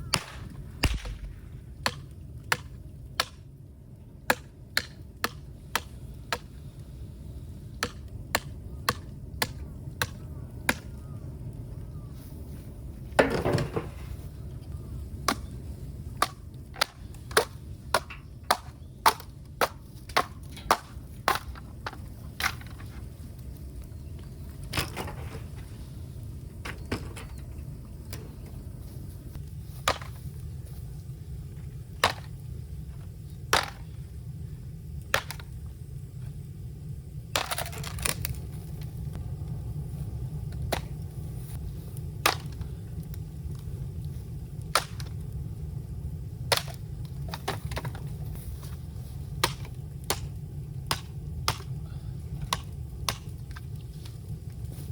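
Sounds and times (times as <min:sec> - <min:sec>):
low rumble: 0:00.0 - 0:03.0, 0:38.4 - 0:46.4
bamboo cracking and snapping: 0:00.0 - 0:03.5, 0:04.3 - 0:06.5, 0:16.2 - 0:23.0, 0:37.3 - 0:39.0, 0:42.1 - 0:43.7, 0:44.6 - 0:45.3, 0:46.5 - 0:48.0, 0:49.3 - 0:54.2.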